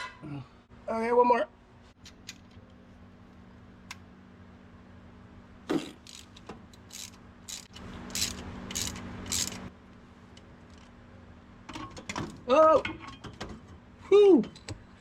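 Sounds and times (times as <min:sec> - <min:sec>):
socket ratchet clicking: 0:06.0 - 0:09.7.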